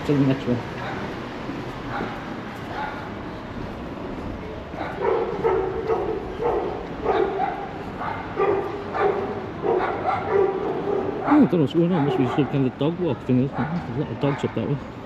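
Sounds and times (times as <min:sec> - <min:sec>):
street background noise: 0:00.0 - 0:15.0
dog barking: 0:00.8 - 0:01.1, 0:01.9 - 0:03.1, 0:04.8 - 0:12.7, 0:13.5 - 0:14.6.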